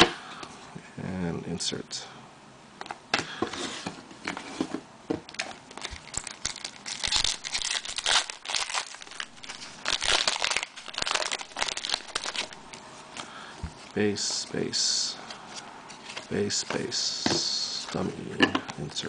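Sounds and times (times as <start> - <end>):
foil wrapper tearing and crinkling: 5.3 - 12.7.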